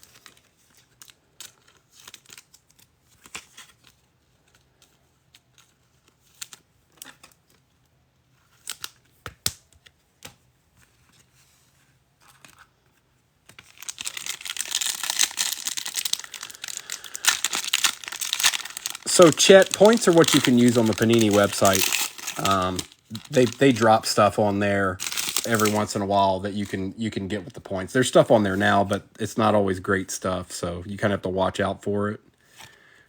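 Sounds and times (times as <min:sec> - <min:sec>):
card wrapper tearing and crinkling: 0:00.0 - 0:03.9, 0:13.5 - 0:29.5
cards clicking and tapping: 0:09.2 - 0:10.4.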